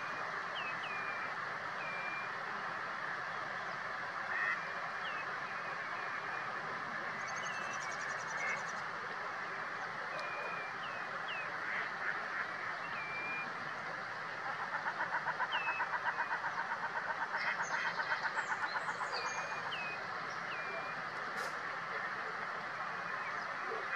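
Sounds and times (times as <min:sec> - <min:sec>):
rapid pulsed bird call: 0:00.0 - 0:02.4, 0:10.1 - 0:11.5, 0:12.7 - 0:13.6, 0:14.5 - 0:21.6
steady hiss: 0:00.0 - 0:23.9.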